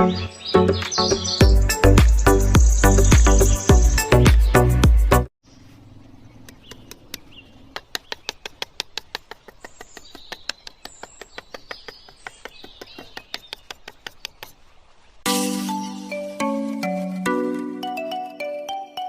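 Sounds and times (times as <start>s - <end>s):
faint bird chirps: 5.4s - 15.2s
sharp evenly spaced clicks: 6.5s - 14.6s.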